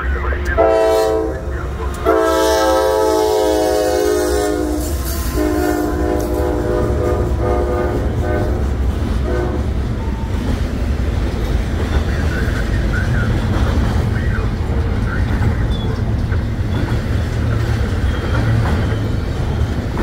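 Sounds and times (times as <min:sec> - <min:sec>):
locomotive horn blasts: 0:00.6 - 0:09.7
freight cars rumbling and clattering: 0:01.3 - 0:02.2, 0:06.0 - 0:20.0.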